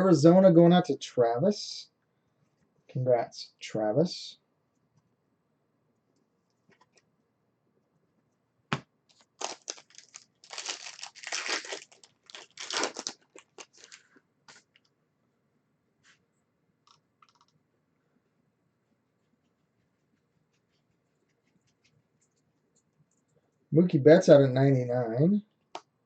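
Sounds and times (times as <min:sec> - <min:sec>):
foil wrapper tearing and crinkling: 0:09.1 - 0:14.1.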